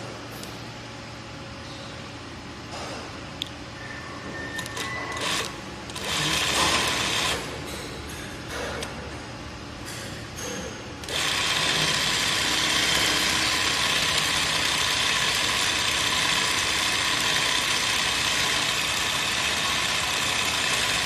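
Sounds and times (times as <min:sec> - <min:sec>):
sewing machine running: 0:05.2 - 0:07.5, 0:11.0 - 0:21.0.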